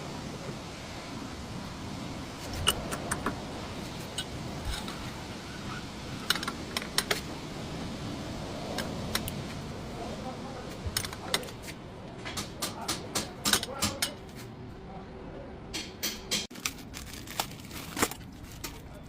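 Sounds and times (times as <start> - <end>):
hand tools clinking on metal: 12.7 - 14.4.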